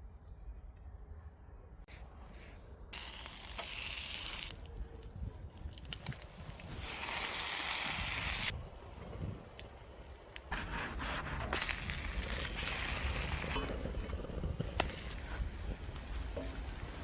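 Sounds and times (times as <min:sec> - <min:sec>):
bread sizzling in a pan: 0:03.0 - 0:04.6, 0:06.7 - 0:08.5, 0:11.5 - 0:13.6.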